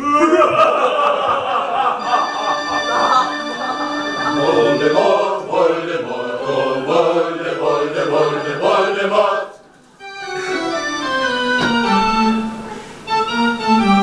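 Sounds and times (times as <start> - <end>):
choir singing: 0.5 - 9.7
held organ-like keyboard notes: 0.9 - 14.0.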